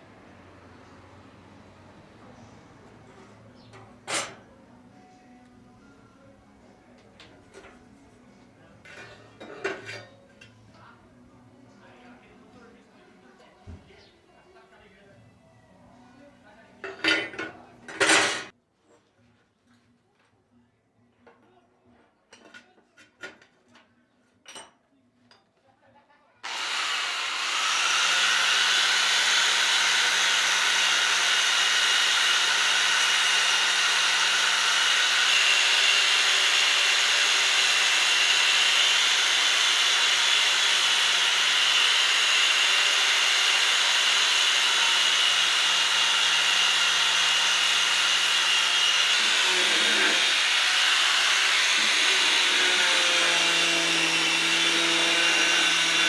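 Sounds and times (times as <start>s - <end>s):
electric power tool whirring: 26.4s - 56.0s.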